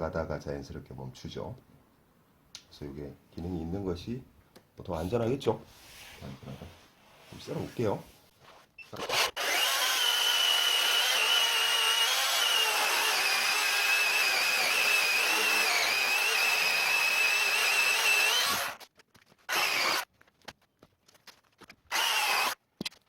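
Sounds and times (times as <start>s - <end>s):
electric chainsaw cutting log: 9.1s - 18.8s, 19.5s - 20.1s, 21.9s - 22.6s.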